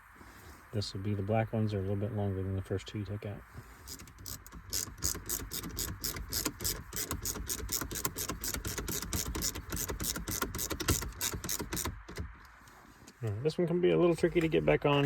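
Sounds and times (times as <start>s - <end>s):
hand ratchet clicking: 3.8s - 12.4s.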